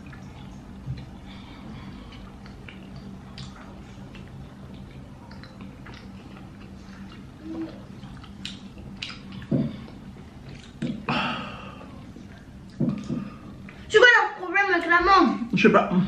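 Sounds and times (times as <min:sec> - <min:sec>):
chewing and mouth clicks: 0:00.0 - 0:11.1
hummed mm sounds: 0:00.0 - 0:14.0.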